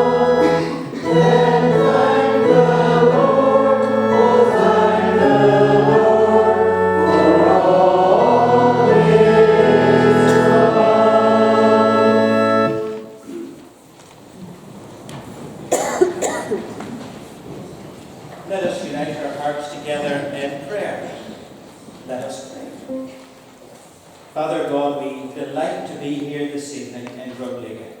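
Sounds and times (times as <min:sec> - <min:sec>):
choir singing a hymn: 0:00.0 - 0:13.2.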